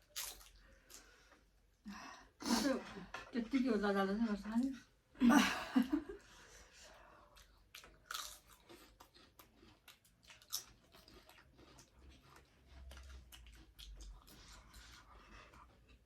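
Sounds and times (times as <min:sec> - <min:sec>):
person chewing: 0:00.0 - 0:01.8, 0:07.1 - 0:16.0.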